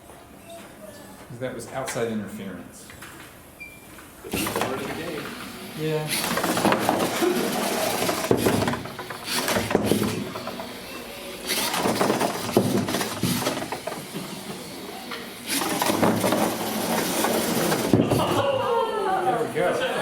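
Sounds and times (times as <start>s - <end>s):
robot drive motors: 4.3s - 18.4s
knocks and clatter: 6.2s - 10.8s, 11.5s - 14.7s, 15.5s - 18.3s.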